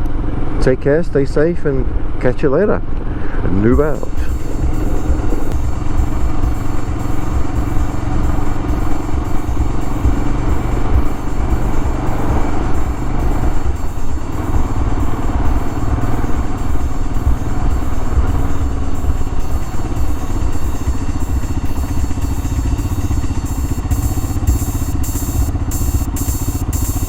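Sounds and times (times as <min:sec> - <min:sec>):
choppy hiss: 0:00.0 - 0:27.0
motorcycle engine running: 0:00.0 - 0:27.0.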